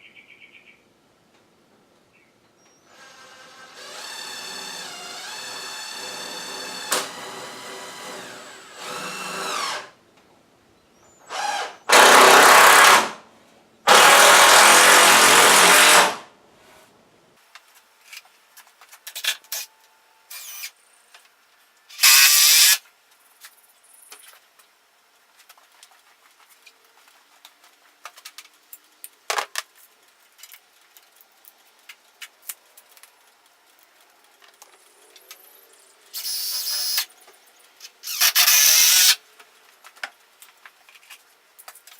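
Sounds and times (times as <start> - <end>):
power drill driving fasteners: 2.9 - 10.0, 11.3 - 13.2, 13.9 - 16.2, 20.3 - 20.8, 21.9 - 22.8, 36.1 - 37.1, 37.8 - 39.2.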